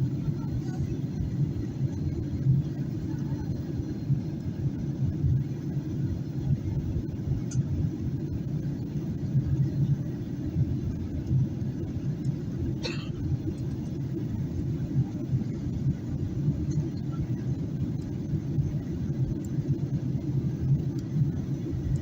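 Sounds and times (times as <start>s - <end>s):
airplane cabin engine rumble: 0.0s - 22.0s.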